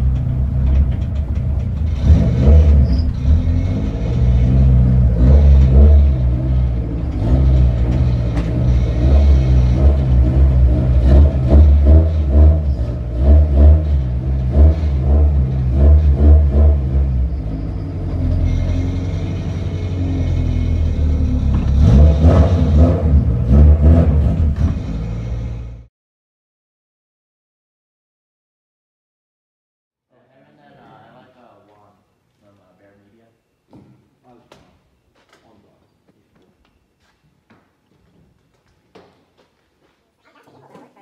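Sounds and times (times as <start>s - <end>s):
car engine idling: 0.0s - 25.7s.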